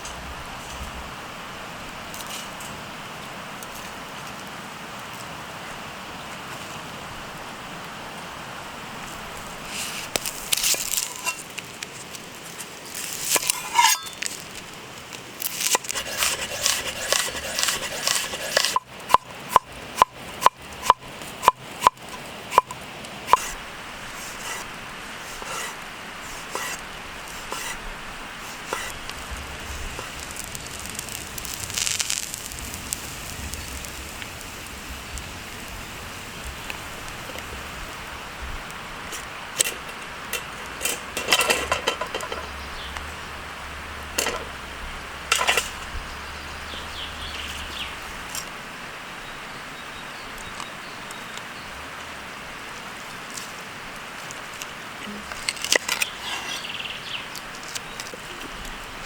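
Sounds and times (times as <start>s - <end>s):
campfire crackling: 0.0s - 49.4s, 50.2s - 59.0s
food preparation handling noises: 9.4s - 19.2s.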